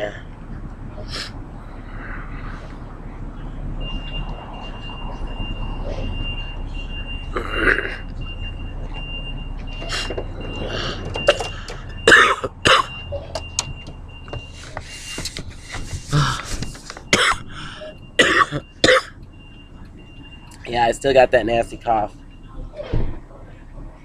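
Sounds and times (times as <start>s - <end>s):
man coughing harshly: 11.3s - 13.0s, 17.1s - 19.2s.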